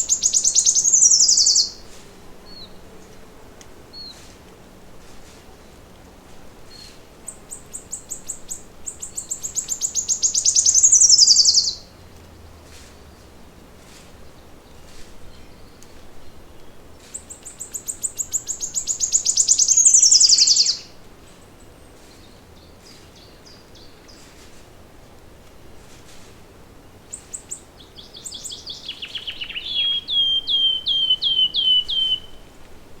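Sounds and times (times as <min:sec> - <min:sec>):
faint bird chirps: 0:00.0 - 0:01.8, 0:06.7 - 0:11.8, 0:17.1 - 0:21.0, 0:27.1 - 0:32.5
songbird trilling song: 0:00.0 - 0:01.9, 0:06.7 - 0:11.9, 0:14.2 - 0:24.3, 0:27.1 - 0:32.8.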